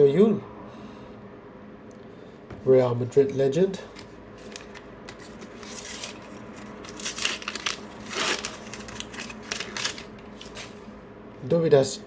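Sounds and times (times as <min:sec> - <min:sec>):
paper stickers rustling and tearing: 0:03.8 - 0:10.8.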